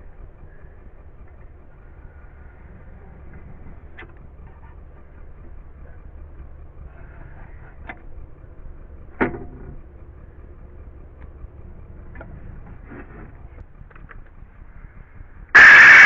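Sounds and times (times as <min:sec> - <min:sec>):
steady low rumble: 0:09.8 - 0:16.0.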